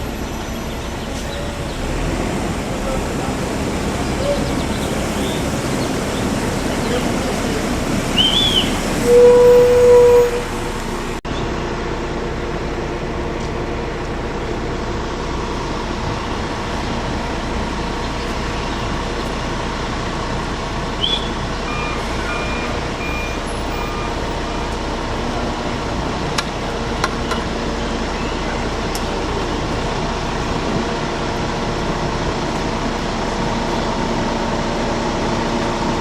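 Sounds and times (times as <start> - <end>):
heavy trucks running: 0.0 - 36.0
reversing alarm beeps: 21.0 - 24.6.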